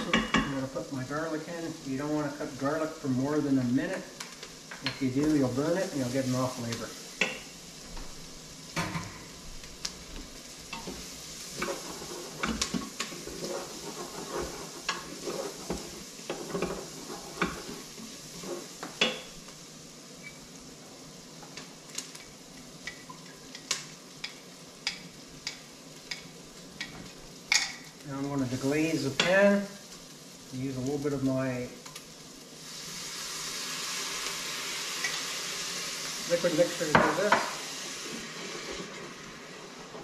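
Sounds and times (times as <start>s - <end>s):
onion and garlic sizzling in a pot: 0.0s - 40.0s
wooden spoon scraping a pot: 10.8s - 19.2s.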